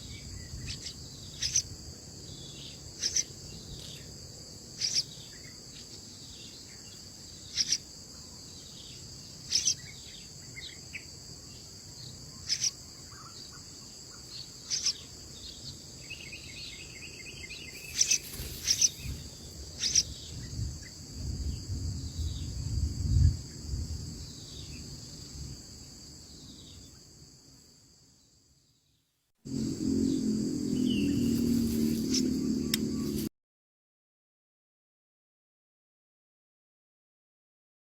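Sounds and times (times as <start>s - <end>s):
high-pitched insect chorus: 0.0s - 28.8s, 29.5s - 33.3s
low rumble: 29.5s - 33.3s.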